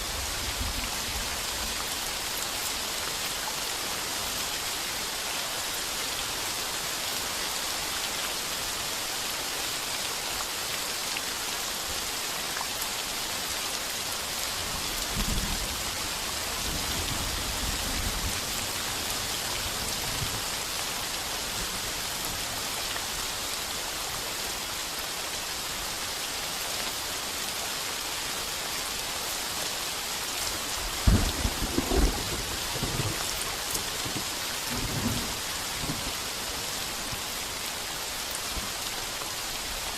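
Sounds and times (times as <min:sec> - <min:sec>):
rain on a tin roof: 0:00.0 - 0:39.9
sharp thunderclap: 0:31.0 - 0:33.3
thunder rumbling: 0:31.0 - 0:36.2.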